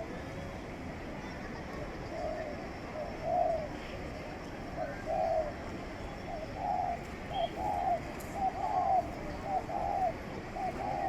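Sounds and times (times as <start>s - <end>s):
pigeon cooing: 2.1s - 3.8s, 4.8s - 5.6s, 6.3s - 11.0s.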